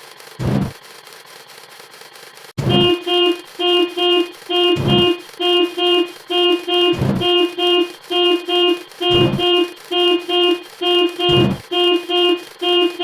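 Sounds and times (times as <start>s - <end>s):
deep thump: 0.4s - 0.7s, 2.6s - 2.9s, 4.8s - 5.2s, 6.9s - 7.3s, 9.1s - 9.5s, 11.3s - 11.6s
car horn beeping in pairs: 2.6s - 13.0s.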